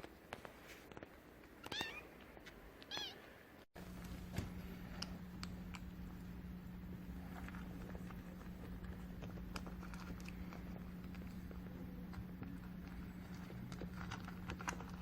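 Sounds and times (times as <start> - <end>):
steady low hum: 3.4 - 15.0.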